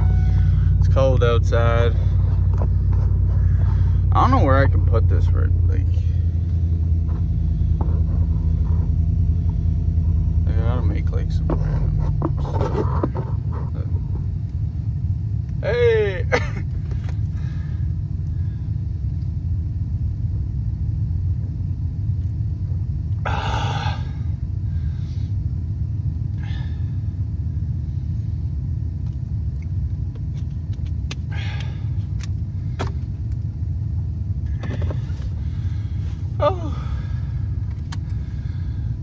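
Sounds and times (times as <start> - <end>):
road noise: 0.0 - 18.3, 30.2 - 39.0
truck engine rumble from inside cab: 0.0 - 39.0.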